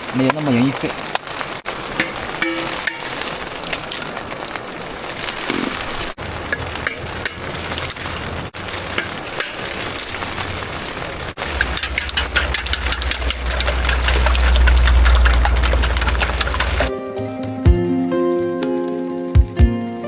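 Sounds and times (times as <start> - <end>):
rain pattering on tent fabric: 0.0 - 16.9, 18.0 - 20.0
low steady rumble: 11.4 - 16.9.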